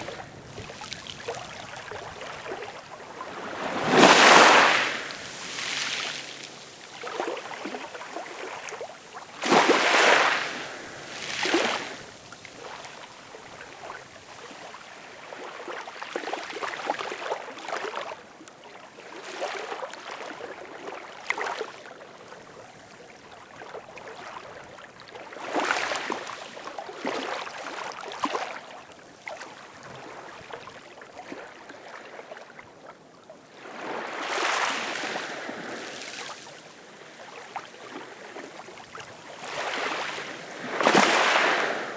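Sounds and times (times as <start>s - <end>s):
ocean waves breaking: 0.0s - 14.0s, 37.9s - 41.9s.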